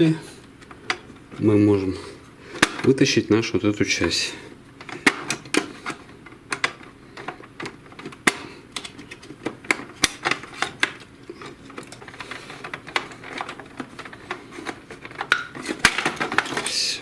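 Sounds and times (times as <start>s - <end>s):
plastic parts clicking and knocking: 0.5s - 1.4s, 2.5s - 3.0s, 4.8s - 16.8s.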